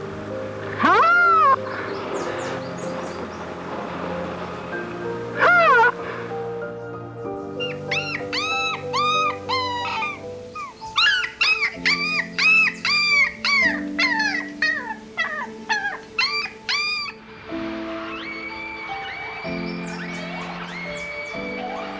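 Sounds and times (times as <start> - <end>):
background music: 0.0 - 21.9
animal yelping calls: 0.7 - 1.8, 5.4 - 6.0, 7.6 - 17.2, 18.0 - 21.9.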